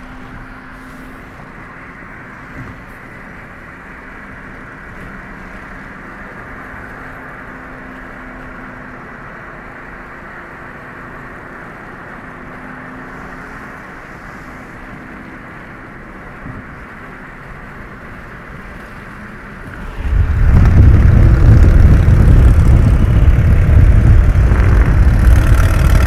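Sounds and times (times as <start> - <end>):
road and wind noise: 0.0 - 26.0
vehicle engine hum: 0.0 - 26.0.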